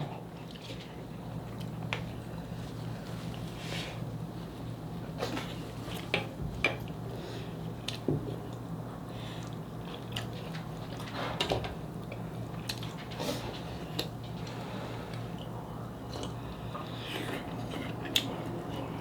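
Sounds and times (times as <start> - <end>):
chewing and smacking: 9.4 - 11.1, 11.9 - 13.2.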